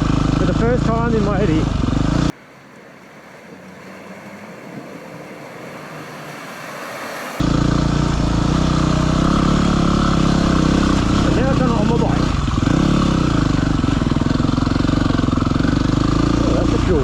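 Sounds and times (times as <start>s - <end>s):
motorcycle engine running: 0.0s - 2.3s, 7.4s - 17.0s.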